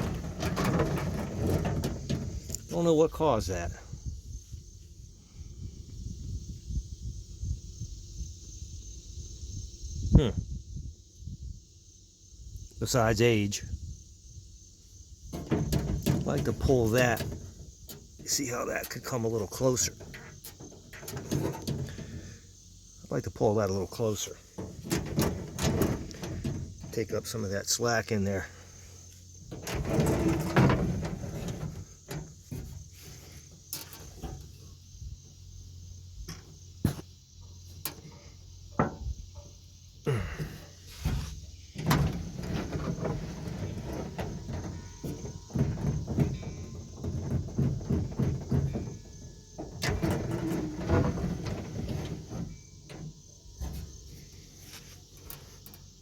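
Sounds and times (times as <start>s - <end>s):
metal parts scraping and rattling: 0.0s - 3.2s, 15.3s - 23.0s, 23.9s - 35.0s, 40.2s - 56.0s
sharp clicks and knocks: 15.3s - 22.2s, 24.6s - 27.2s.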